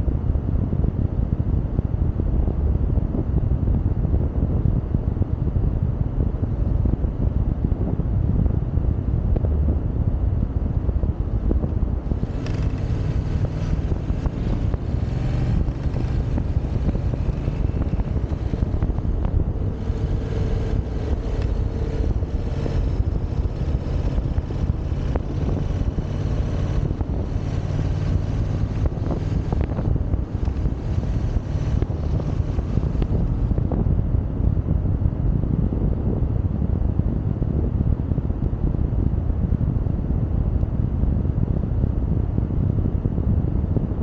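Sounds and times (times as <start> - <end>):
wind noise on microphone: 0.0 - 44.0
motorcycle engine running: 11.0 - 34.7.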